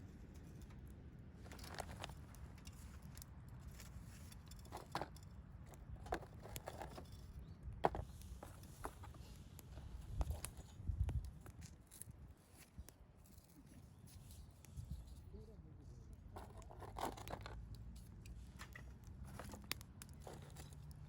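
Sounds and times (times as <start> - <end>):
bonfire crackling and popping: 18.0 - 21.0.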